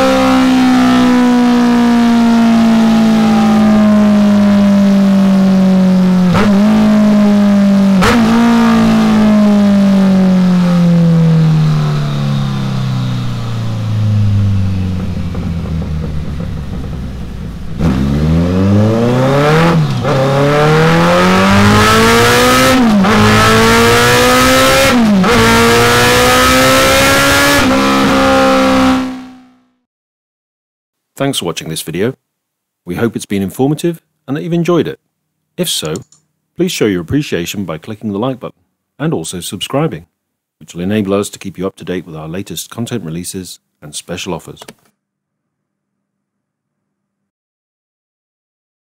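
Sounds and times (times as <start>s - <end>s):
motorcycle engine revving: 0.0s - 29.8s.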